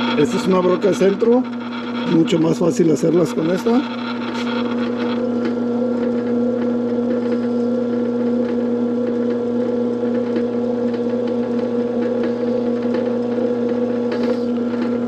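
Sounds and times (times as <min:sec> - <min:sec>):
electric drill boring into steel: 0:00.0 - 0:05.6.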